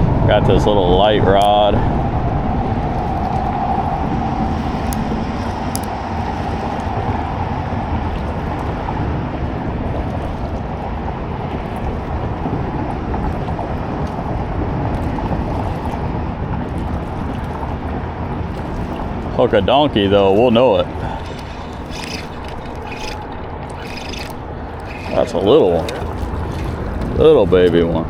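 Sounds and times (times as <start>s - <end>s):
wind rumble on microphone: 0.0s - 28.0s
faint clicks: 4.6s - 6.0s, 21.1s - 25.2s.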